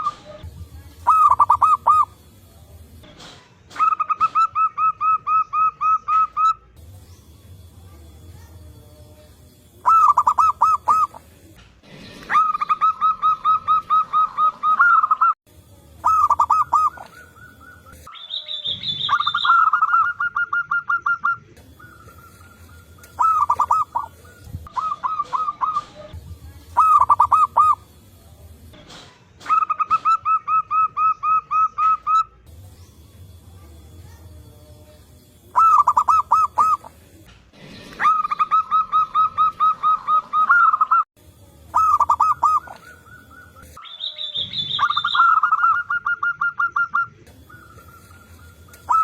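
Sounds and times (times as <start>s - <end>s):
doves cooing: 0.0s - 2.2s, 9.8s - 15.4s, 16.0s - 18.1s, 18.7s - 28.0s, 35.5s - 37.2s, 37.8s - 41.0s, 41.7s - 43.8s, 44.4s - 49.0s
short high-pitched bird call: 16.1s - 26.0s.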